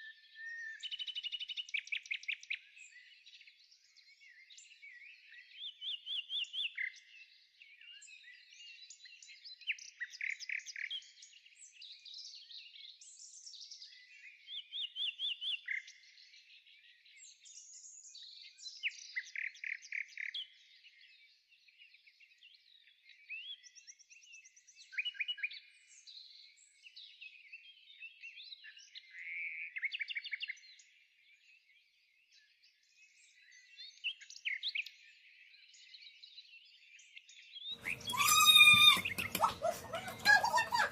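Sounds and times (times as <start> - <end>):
birds singing and chirping: 37.7 - 40.9
bird trills: 37.8 - 40.9.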